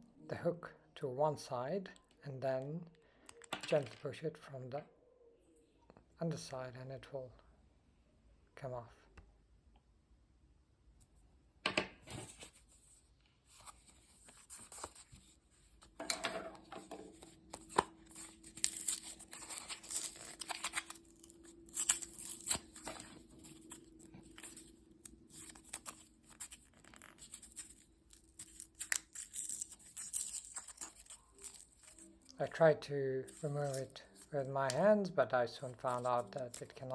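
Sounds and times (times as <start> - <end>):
plastic packaging crinkling and tearing: 13.4 - 16.0, 17.1 - 32.6, 33.2 - 34.9, 35.7 - 36.9.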